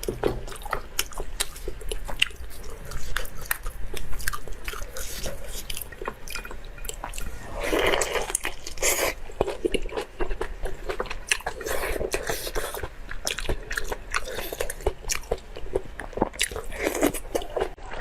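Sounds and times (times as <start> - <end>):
wet chewing and biting: 0.0 - 18.0.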